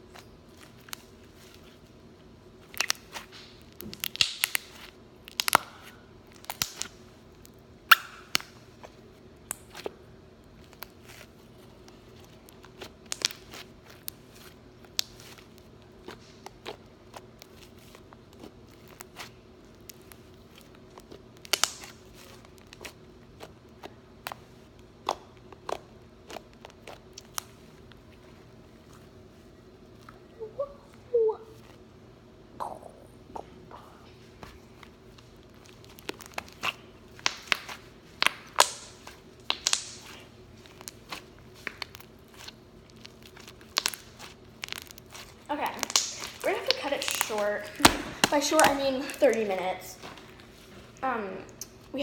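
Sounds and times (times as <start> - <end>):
slime clicks and crackling pops: 2.6 - 8.6, 10.6 - 24.4, 25.0 - 27.6, 35.5 - 49.7.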